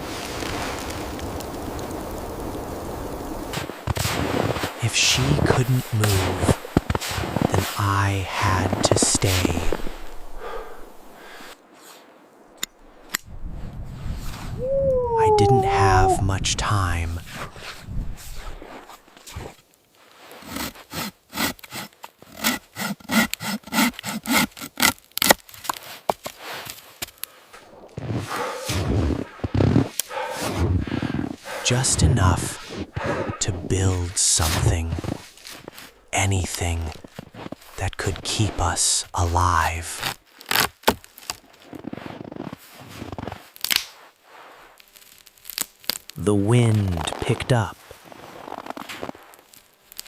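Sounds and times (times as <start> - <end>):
saw cutting through wood: 20.4 - 25.0
sticks snapping: 43.6 - 44.0.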